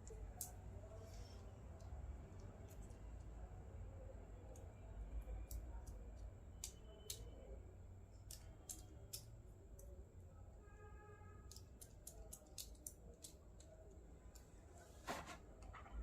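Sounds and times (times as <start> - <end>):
low background hum: 0.0 - 16.0
plastic toy pieces clicking: 8.2 - 9.9, 11.5 - 13.8.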